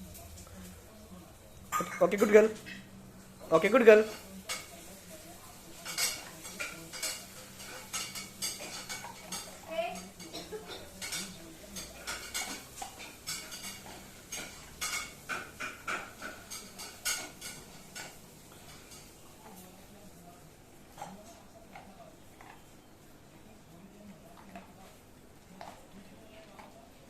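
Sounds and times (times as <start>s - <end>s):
metal dishware clattering: 5.8s - 19.1s.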